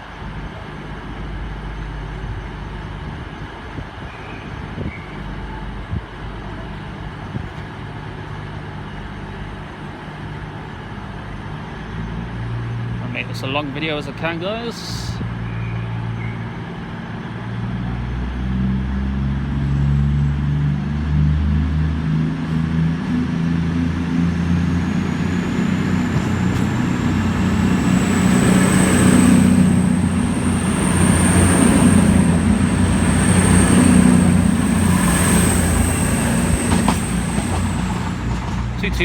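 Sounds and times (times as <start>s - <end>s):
diesel train engines throttling up: 13.0s - 39.0s
high-pitched whine: 23.8s - 38.5s.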